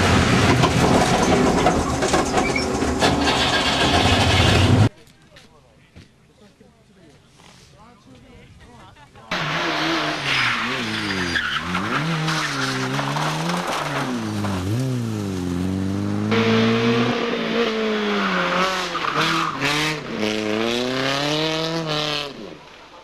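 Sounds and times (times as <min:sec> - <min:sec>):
rally car engine revving: 0:09.3 - 0:22.9
rushing noise of car at speed: 0:09.3 - 0:23.0.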